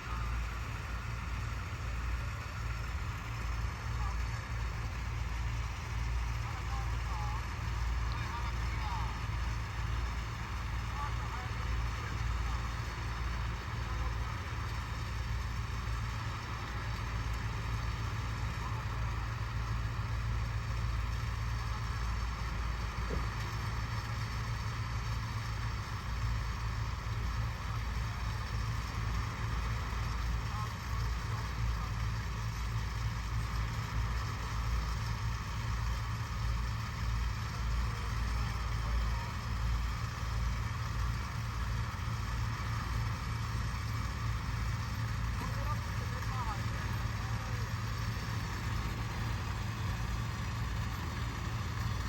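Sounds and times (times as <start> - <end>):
truck engine running at low revs: 0.0 - 52.0.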